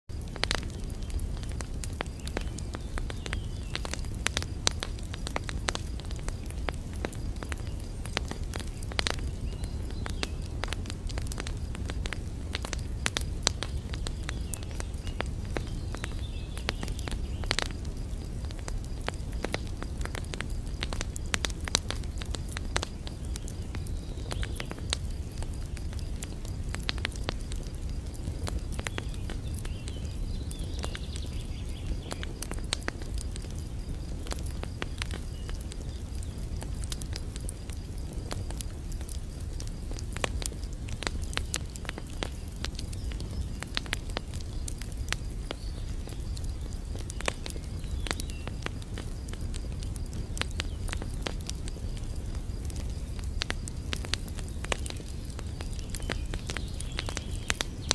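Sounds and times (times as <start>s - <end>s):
crackling and clicking snaps: 0.1s - 57.9s.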